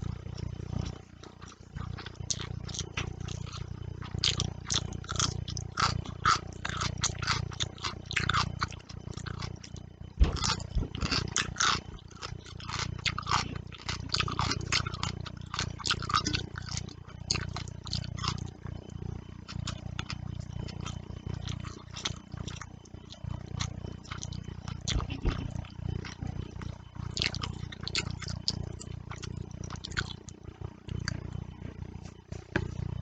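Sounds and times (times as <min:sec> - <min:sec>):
low steady hum: 0:00.0 - 0:33.0
wet chewing and lip smacks: 0:00.4 - 0:18.5, 0:19.4 - 0:31.4
thump: 0:10.2 - 0:11.0.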